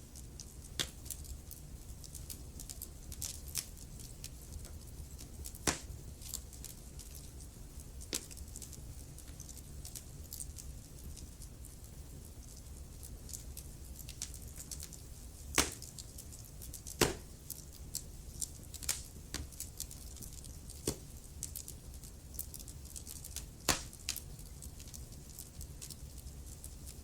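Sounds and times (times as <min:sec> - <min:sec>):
wood fire crackling: 0:00.0 - 0:27.0
fire popping loudly: 0:14.1 - 0:17.7, 0:18.4 - 0:21.2, 0:23.1 - 0:24.3.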